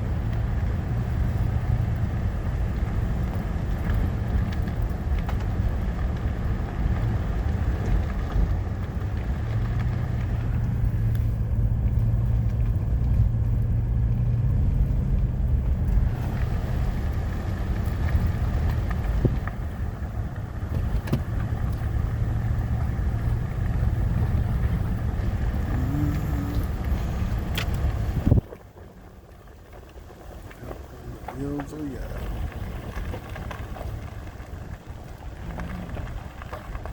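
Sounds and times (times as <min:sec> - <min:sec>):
car engine and road rumble: 0:00.0 - 0:36.9.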